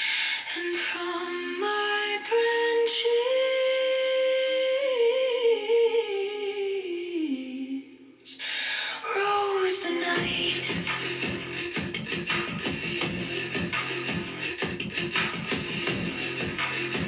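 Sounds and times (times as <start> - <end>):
wordless humming voice: 9.1 - 17.0
music: 10.2 - 17.0.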